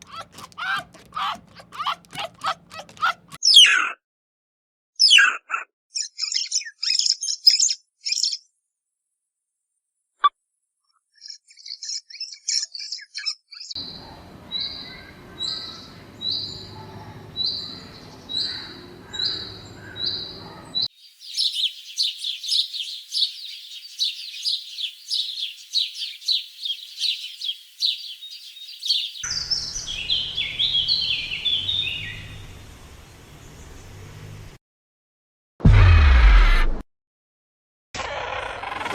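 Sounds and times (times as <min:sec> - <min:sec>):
birds chirping: 0:00.0 - 0:03.4, 0:13.8 - 0:34.5.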